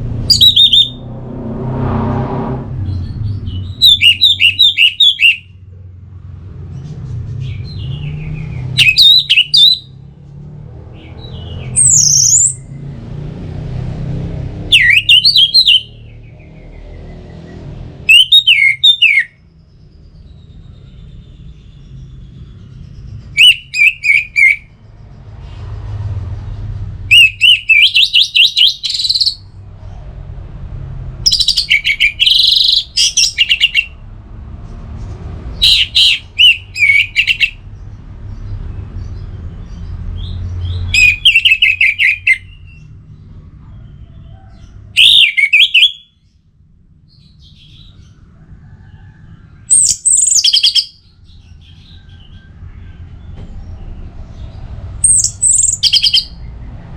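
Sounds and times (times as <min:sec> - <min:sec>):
thrush singing trilled notes: 0:00.0 - 0:01.2, 0:03.4 - 0:05.5.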